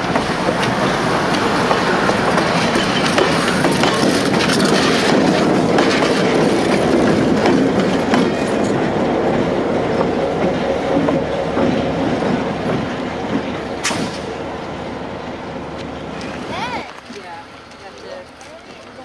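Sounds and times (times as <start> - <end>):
train wheels clicking over rail joints: 0.0 - 19.0
sharp click: 13.8 - 14.3.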